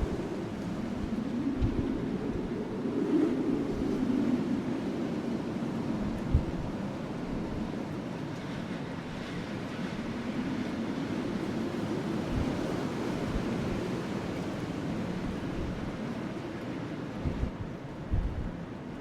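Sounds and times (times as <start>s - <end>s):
wind rushing: 0.0s - 5.0s
soft low thumps from fire: 1.6s - 2.0s, 17.3s - 18.6s.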